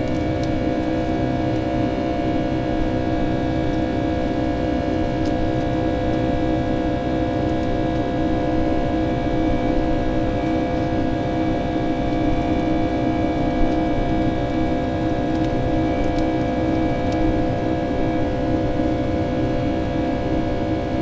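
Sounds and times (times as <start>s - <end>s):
constant hums: 0.0s - 21.0s
jet engine roar in cabin: 0.0s - 21.0s.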